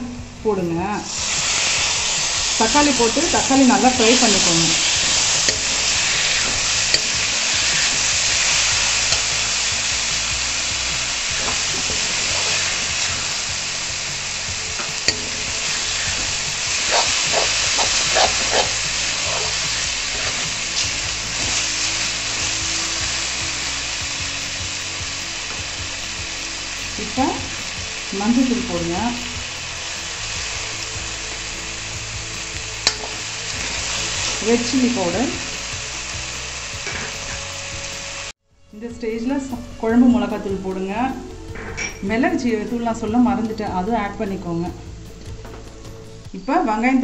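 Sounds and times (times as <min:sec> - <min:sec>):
vegetables sizzling in hot oil: 0:01.0 - 0:38.4
spatula scraping a wok: 0:01.1 - 0:28.1, 0:29.2 - 0:37.9.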